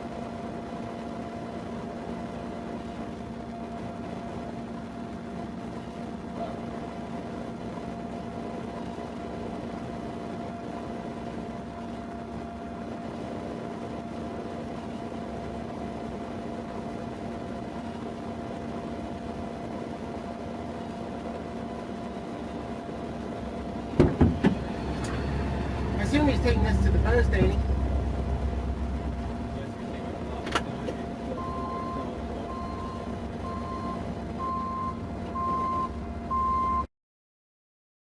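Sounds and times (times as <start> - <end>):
vehicle interior hum and hiss: 0.0 - 36.8
low drone: 24.5 - 34.4.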